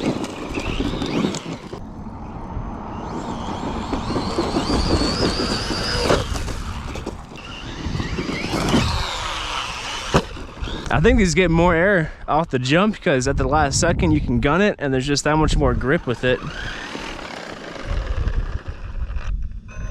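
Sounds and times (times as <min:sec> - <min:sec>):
tyre noise on dirt: 0:00.0 - 0:01.9, 0:02.9 - 0:11.5, 0:15.6 - 0:19.7
rc car motor whining: 0:00.0 - 0:11.1, 0:15.7 - 0:19.9.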